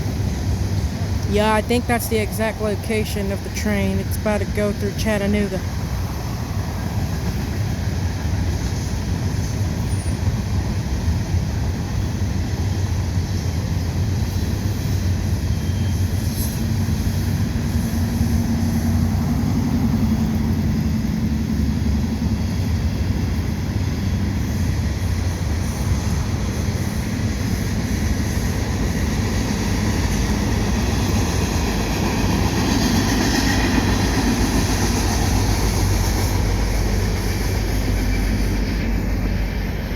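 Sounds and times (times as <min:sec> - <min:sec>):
freight train rumbling on rails: 0:00.0 - 0:39.9.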